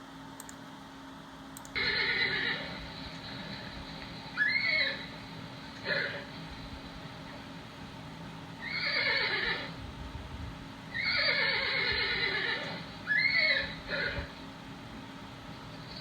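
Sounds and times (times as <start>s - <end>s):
horse whinnying: 1.8s - 2.8s, 4.4s - 5.1s, 5.8s - 6.3s, 8.6s - 9.8s, 10.9s - 14.3s.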